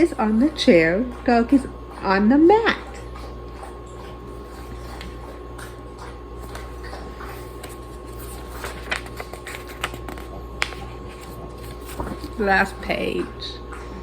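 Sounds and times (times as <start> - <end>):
electrical hum: 0.0 - 14.0
book pages rustling: 6.7 - 12.9.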